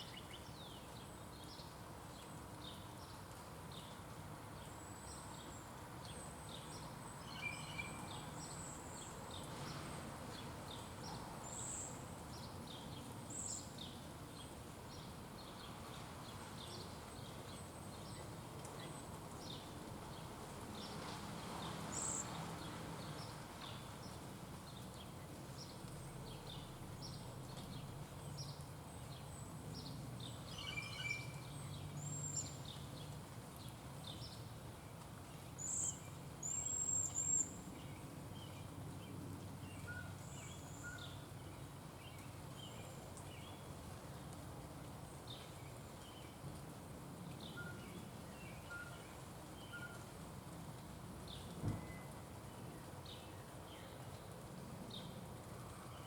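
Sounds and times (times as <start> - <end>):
outdoor background noise: 0.0 - 56.0
small birds chirping: 21.6 - 44.4.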